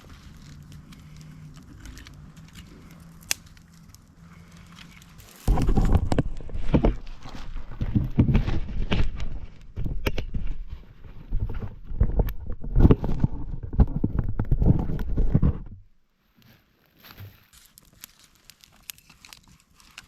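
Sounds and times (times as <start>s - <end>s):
heavy low rumble: 0.0s - 10.6s
sharp knocks and cracks: 0.1s - 4.6s, 5.2s - 10.7s.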